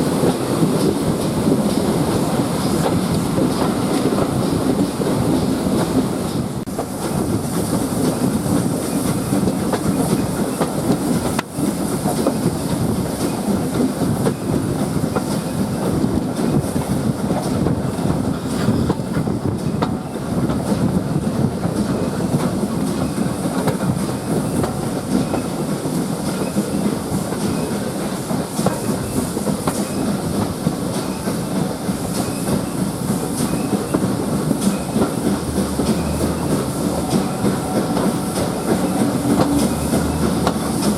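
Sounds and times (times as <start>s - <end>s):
steam train running: 0.0s - 40.9s
carriage wheels rumbling on track: 0.2s - 40.9s
clicking over rail joints: 33.3s - 40.9s.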